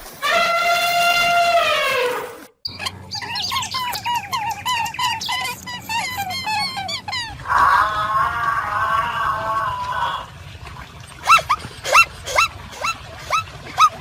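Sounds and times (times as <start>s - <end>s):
squawking bird calls: 0.2s - 8.0s, 11.2s - 14.0s.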